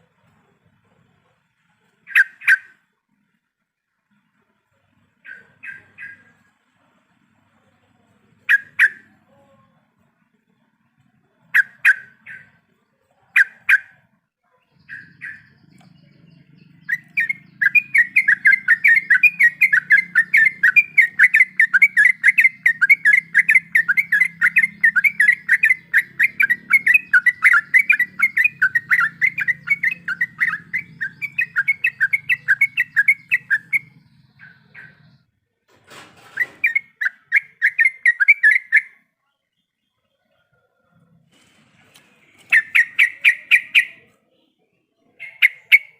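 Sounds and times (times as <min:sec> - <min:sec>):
bird calls: 0:00.0 - 0:02.9, 0:05.2 - 0:06.5, 0:08.4 - 0:09.5, 0:11.3 - 0:35.3, 0:36.0 - 0:45.9
bird chattering rapidly: 0:02.0 - 0:02.8, 0:05.2 - 0:06.4, 0:08.5 - 0:09.1, 0:11.5 - 0:12.6, 0:13.3 - 0:14.1, 0:14.8 - 0:15.8, 0:16.5 - 0:35.2, 0:36.4 - 0:39.0, 0:42.5 - 0:44.1, 0:45.1 - 0:45.9.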